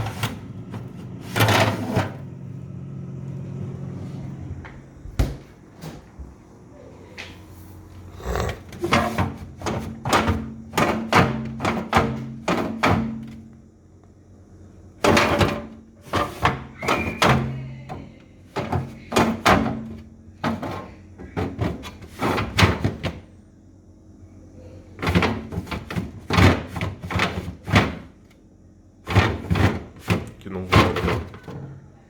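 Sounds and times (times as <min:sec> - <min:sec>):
knocks and rattling on refrigerator: 0:04.7 - 0:06.4, 0:08.4 - 0:13.5, 0:15.0 - 0:23.3, 0:25.0 - 0:28.3, 0:29.0 - 0:31.8.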